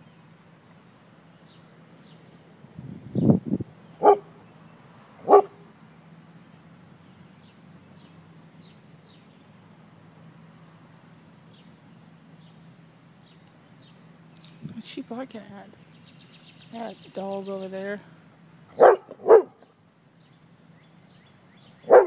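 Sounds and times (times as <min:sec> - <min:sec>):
dog barking: 0:04.0 - 0:04.3, 0:05.2 - 0:05.6, 0:18.7 - 0:19.7.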